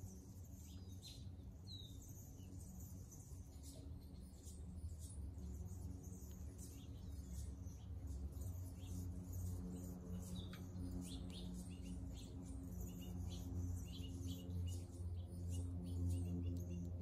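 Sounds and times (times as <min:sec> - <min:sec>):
low steady hum: 0:00.0 - 0:17.0
small birds chirping: 0:00.0 - 0:17.0.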